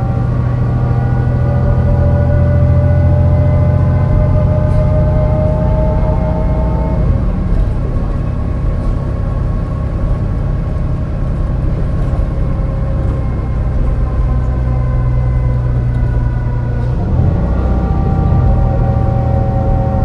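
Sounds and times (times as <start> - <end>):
gearbox whine: 0.0 - 20.0
misfiring bus engine running: 0.0 - 20.0.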